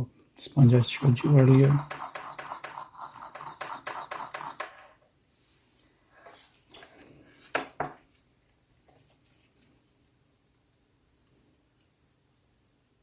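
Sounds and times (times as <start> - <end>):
soldering iron scratching wire sponge: 0.6 - 5.0.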